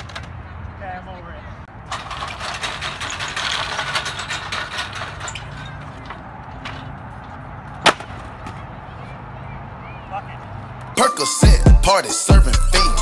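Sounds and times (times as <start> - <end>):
bike rolling over gritty pavement: 1.7 - 8.7.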